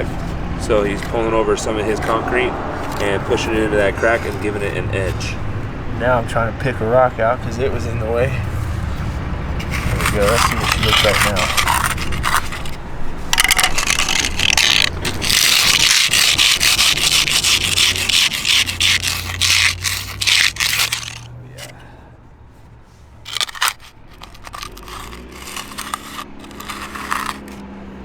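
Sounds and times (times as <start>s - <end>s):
tool scraping wet concrete: 0.0s - 5.4s, 9.6s - 21.7s, 23.3s - 27.6s.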